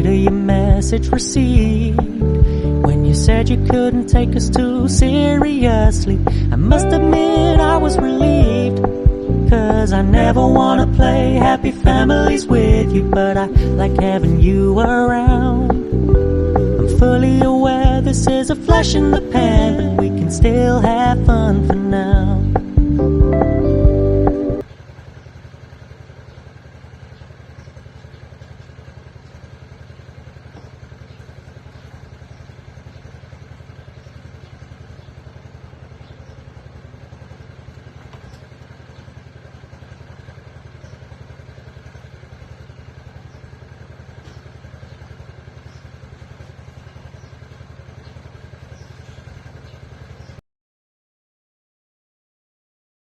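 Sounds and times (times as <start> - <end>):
small engine running: 0.0 - 50.4
song: 1.4 - 24.6.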